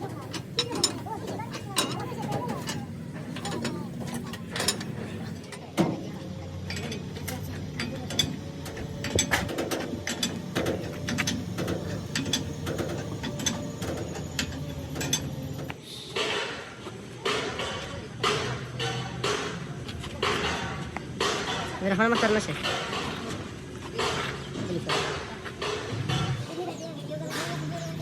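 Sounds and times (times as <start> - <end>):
metal tools clicking and knocking: 0.0 - 5.7, 6.6 - 15.7.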